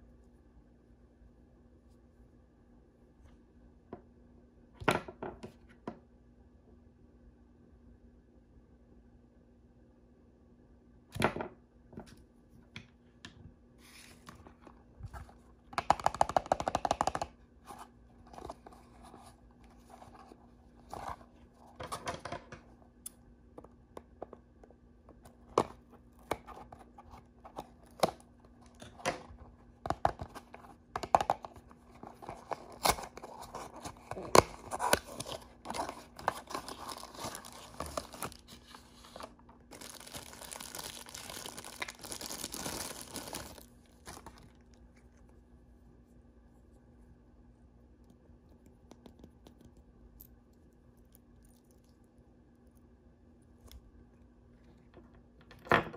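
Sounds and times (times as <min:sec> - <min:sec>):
clicks and taps: 0:15.7 - 0:17.4
toy packaging tearing and crinkling: 0:31.3 - 0:44.6.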